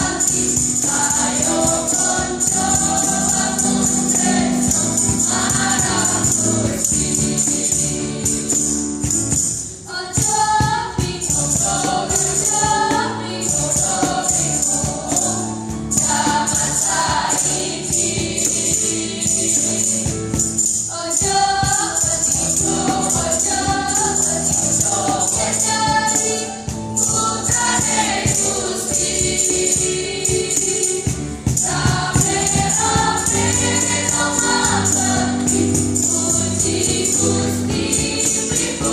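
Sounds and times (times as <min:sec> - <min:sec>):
sustained accompaniment: 0:00.0 - 0:10.2, 0:11.2 - 0:38.9
church choir singing: 0:00.0 - 0:38.9
high jingling shimmer: 0:13.4 - 0:38.9.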